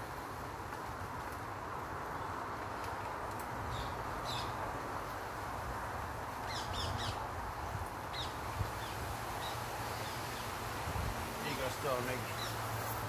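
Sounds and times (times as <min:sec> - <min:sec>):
background hiss: 0:00.0 - 0:13.0
birds calling: 0:03.7 - 0:04.6, 0:06.4 - 0:10.6, 0:11.5 - 0:12.8.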